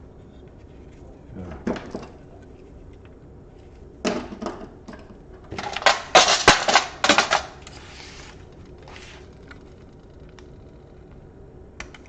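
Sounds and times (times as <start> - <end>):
soft rustle: 0.0 - 1.4, 7.7 - 10.2
laptop parts clattering: 5.5 - 7.8.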